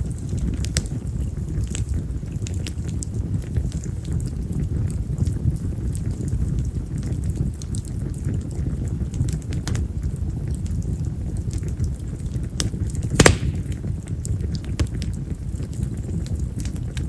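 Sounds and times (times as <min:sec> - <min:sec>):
bonfire flames rumbling: 0:00.0 - 0:17.0
firewood crackling: 0:00.0 - 0:17.0
loud sharp pop of fire: 0:13.1 - 0:14.1, 0:14.7 - 0:15.1.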